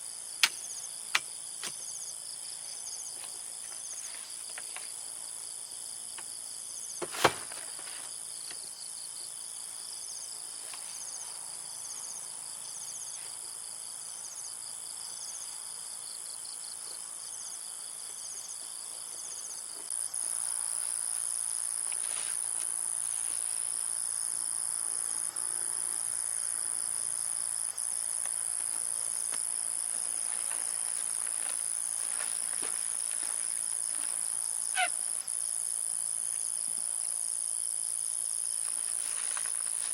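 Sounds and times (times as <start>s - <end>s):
insects chirping chorus: 0.0s - 39.9s
sharp click: 0.4s - 1.8s.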